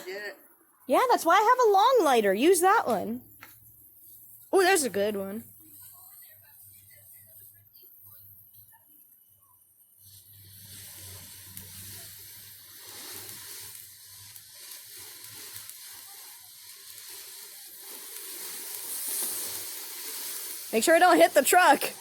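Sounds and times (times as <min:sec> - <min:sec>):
firework hissing: 0:00.0 - 0:08.8, 0:09.8 - 0:22.0.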